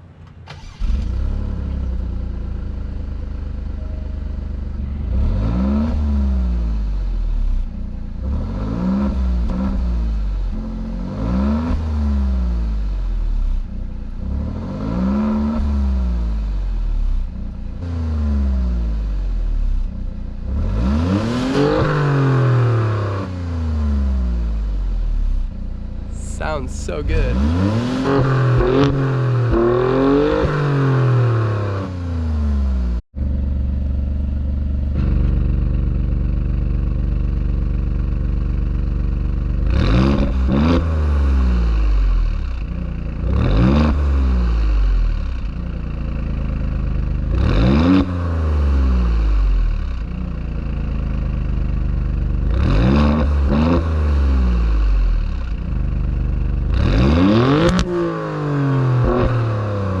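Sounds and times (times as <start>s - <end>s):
car engine idling and revving: 0.0s - 60.0s.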